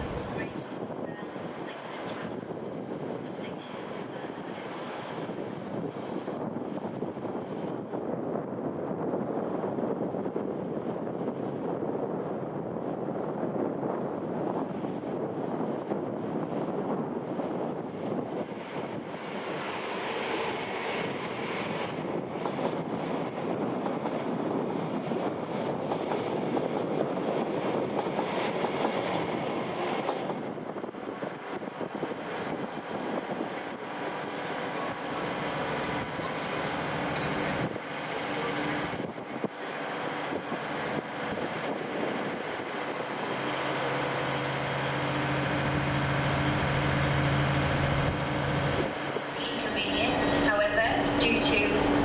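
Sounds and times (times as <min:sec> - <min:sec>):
low engine hum: 0:00.0 - 0:00.7, 0:42.5 - 0:52.0
train rumble and rail noise: 0:00.0 - 0:52.0.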